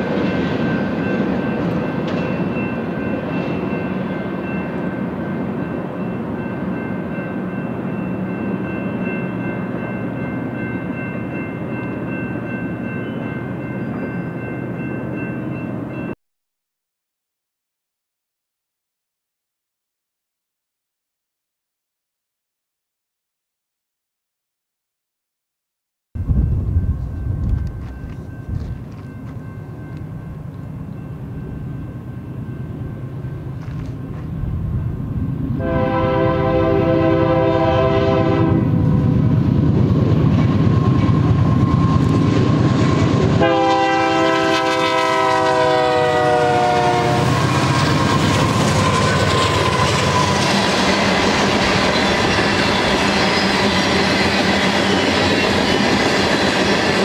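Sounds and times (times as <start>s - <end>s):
train wheels clattering on rails: 0.0s - 6.7s, 46.8s - 57.0s
diesel locomotive engines rumbling: 0.0s - 16.2s, 26.2s - 57.0s
locomotive horn: 35.6s - 38.8s, 43.4s - 47.5s.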